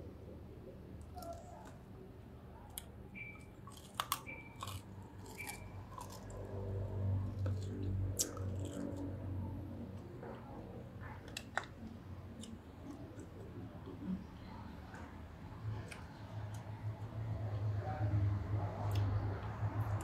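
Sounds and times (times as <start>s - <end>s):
person chewing meat: 2.7s - 9.3s, 11.0s - 14.1s.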